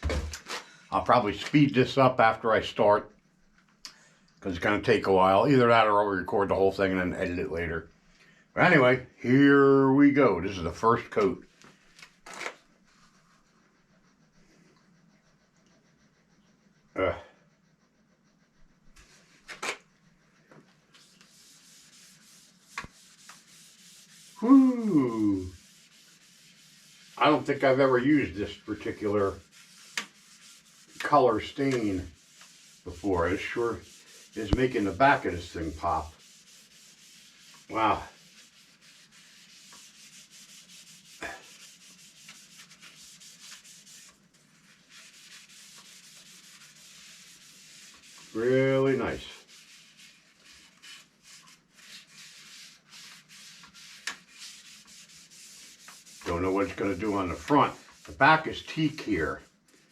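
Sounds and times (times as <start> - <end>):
cloth rubbing on wood: 9.6 - 14.5, 20.8 - 59.9
wiping strokes: 9.6 - 17.2, 17.8 - 59.9.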